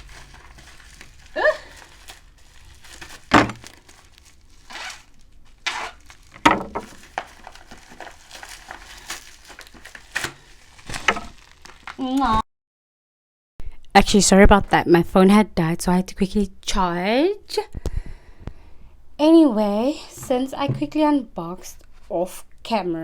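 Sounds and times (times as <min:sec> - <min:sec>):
plastic packaging crinkling and tearing: 0:00.0 - 0:12.2
louder knocks: 0:20.2 - 0:21.0.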